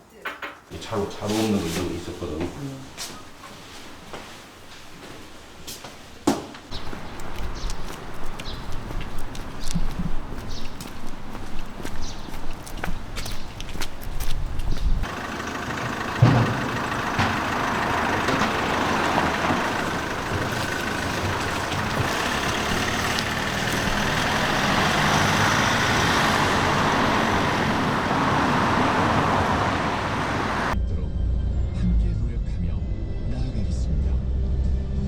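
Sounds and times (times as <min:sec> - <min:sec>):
motor vehicle running: 0:06.7 - 0:30.8.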